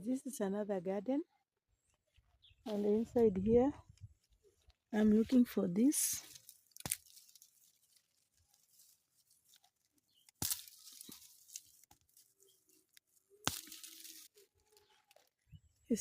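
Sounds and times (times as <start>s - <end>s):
dry vegetation crackling and rustling: 2.1s - 16.0s
sharp crunches: 6.3s - 8.6s, 9.4s - 15.3s.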